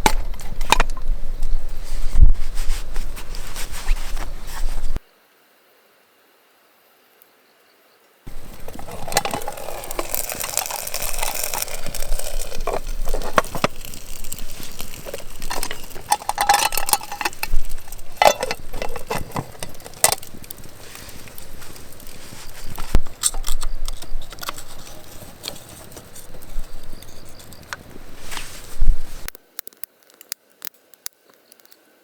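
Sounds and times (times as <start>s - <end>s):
handling rustling: 0.0s - 5.0s, 8.3s - 29.3s
light clinks and clicks: 8.3s - 29.3s.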